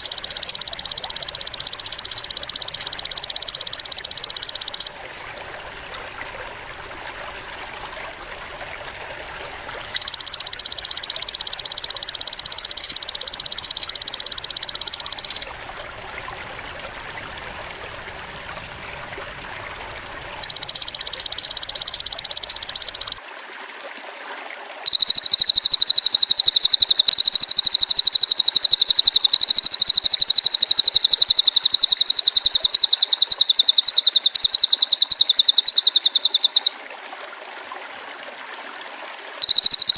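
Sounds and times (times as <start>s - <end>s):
rapid high-pitched trills: 0.0s - 5.0s, 9.9s - 15.5s, 20.4s - 23.2s, 24.9s - 36.7s, 39.4s - 39.9s.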